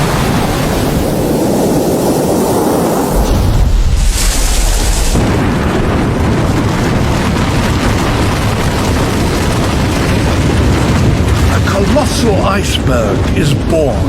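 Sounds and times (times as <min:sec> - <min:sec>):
deep rumble of collapsing ice: 0:00.0 - 0:14.0
ice crashing: 0:03.1 - 0:13.9.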